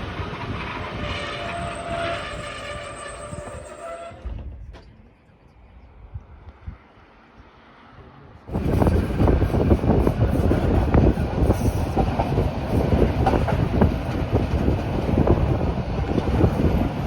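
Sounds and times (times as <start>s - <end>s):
train wheels rumbling on rails: 0.0s - 5.0s, 8.5s - 17.0s
clacks and knocks of wheels: 8.5s - 17.0s.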